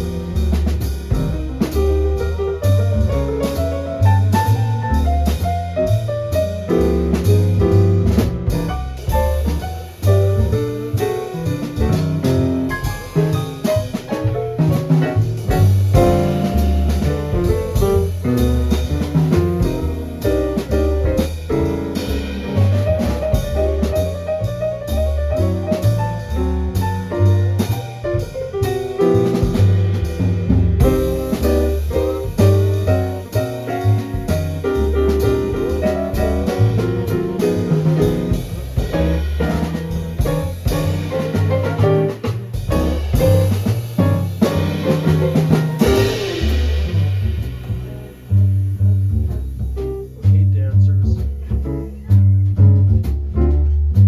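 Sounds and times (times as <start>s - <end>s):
bass low notes: 0.0s - 54.0s
drum kit keeping time: 0.0s - 54.0s
jazz piano solo: 0.0s - 54.0s.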